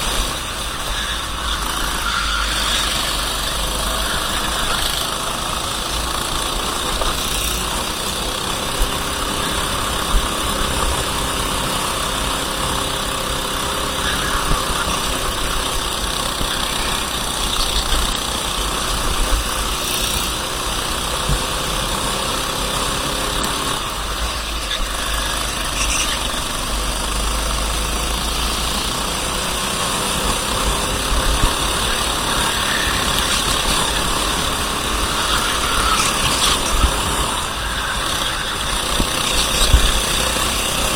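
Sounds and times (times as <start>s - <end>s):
racing kart engine running: 0.0s - 40.9s.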